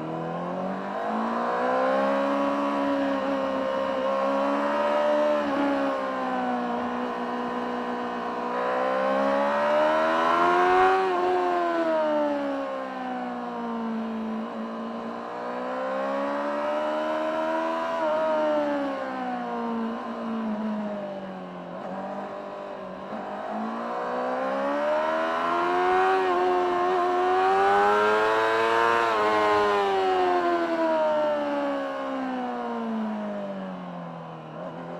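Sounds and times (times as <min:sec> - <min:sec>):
motorcycle engine revving: 0:21.6 - 0:31.7.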